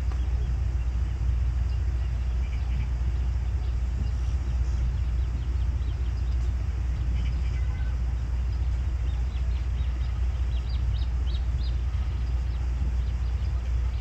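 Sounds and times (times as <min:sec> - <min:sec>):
high bird chirps: 0:00.0 - 0:14.0
steady low rumble: 0:00.0 - 0:14.0.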